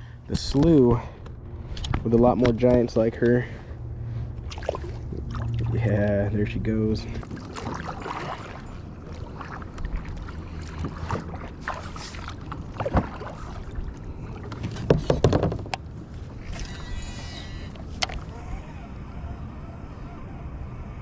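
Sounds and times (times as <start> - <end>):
water splashing and lapping: 1.4 - 19.6
gear knocking against hull: 14.5 - 15.9.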